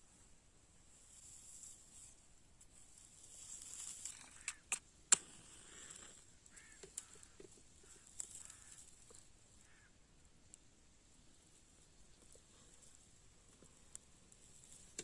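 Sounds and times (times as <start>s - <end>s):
faint short bird calls: 4.1s - 4.7s, 6.4s - 10.1s.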